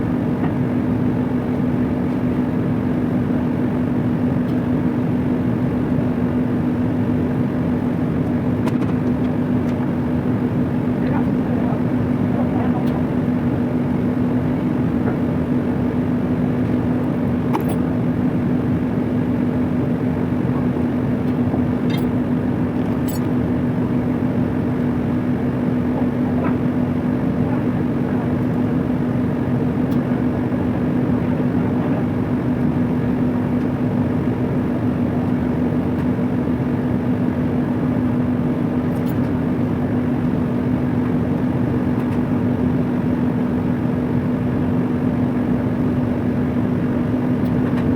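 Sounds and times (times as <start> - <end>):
industrial machinery drone: 7.9 - 34.5.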